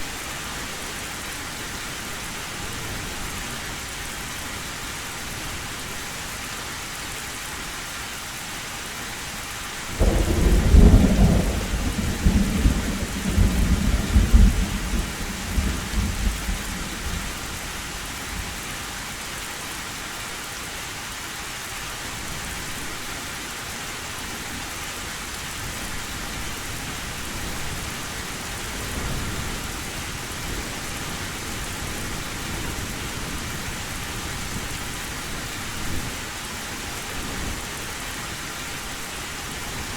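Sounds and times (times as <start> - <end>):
heavy rain on a tin roof: 0.0 - 39.9
thunderclap: 10.0 - 17.4
rumble of thunder: 10.0 - 17.8.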